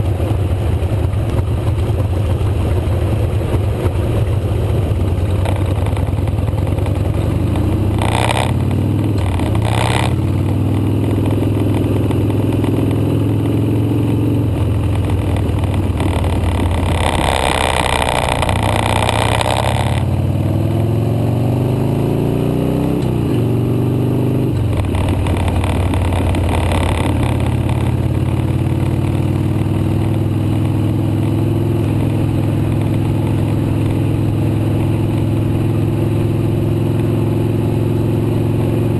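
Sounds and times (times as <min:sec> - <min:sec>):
motorcycle engine accelerating: 0:00.0 - 0:38.9
rushing noise bursts: 0:14.7 - 0:20.1.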